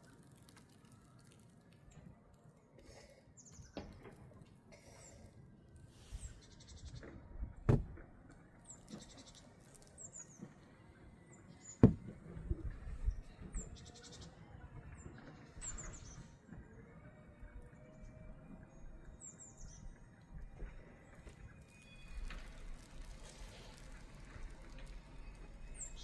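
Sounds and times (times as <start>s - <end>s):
sharp knocks: 11.8s - 12.1s.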